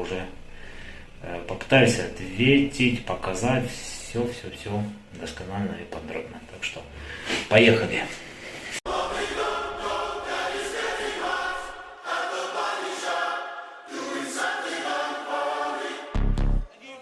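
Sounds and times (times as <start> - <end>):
choir-like singing: 8.8 - 16.8
deep bass hit: 16.2 - 16.7.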